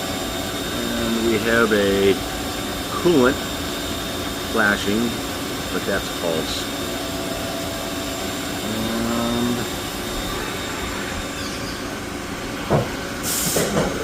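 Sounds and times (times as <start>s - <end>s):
machine whirring: 0.0s - 13.9s
burst of hiss: 13.2s - 13.9s.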